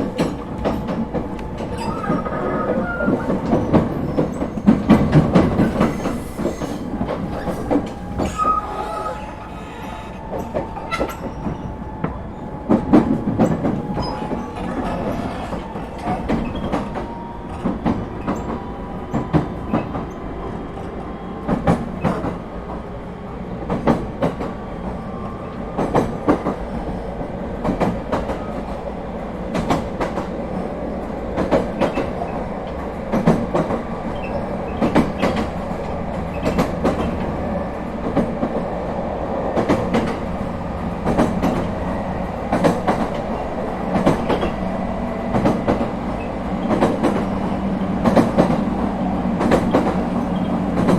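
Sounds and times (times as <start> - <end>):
train running rumble: 0.0 - 50.9
wheels clicking over rail joints: 31.0 - 38.6.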